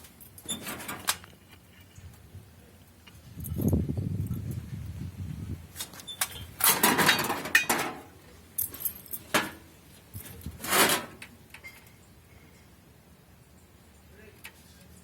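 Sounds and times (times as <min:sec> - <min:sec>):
scrap metal clanking: 0:00.4 - 0:01.3, 0:06.2 - 0:08.1, 0:10.2 - 0:11.9.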